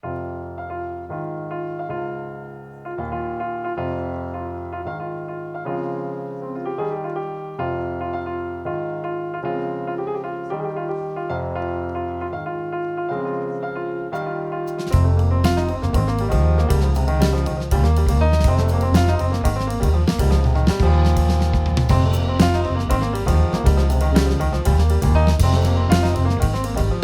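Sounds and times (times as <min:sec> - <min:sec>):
jazz piano chords: 0:00.0 - 0:27.0.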